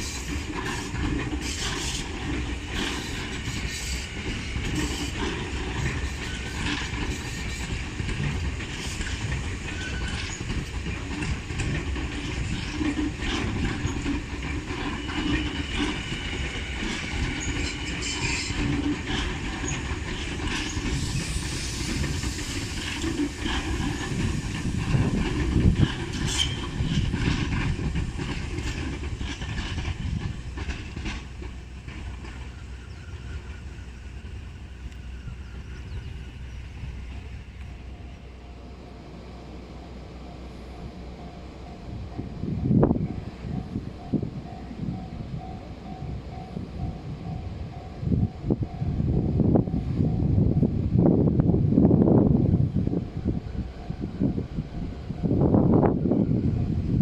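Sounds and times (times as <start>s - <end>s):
wheels clicking over rail joints: 0.0s - 38.4s
electric train running past: 0.0s - 57.0s.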